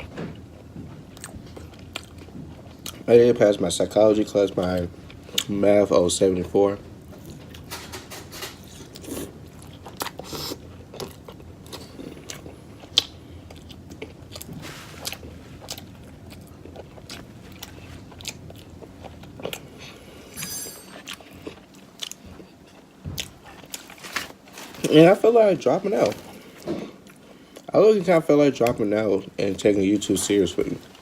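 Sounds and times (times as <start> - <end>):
person chewing food: 0.0 - 3.1, 8.6 - 24.9, 26.0 - 27.7.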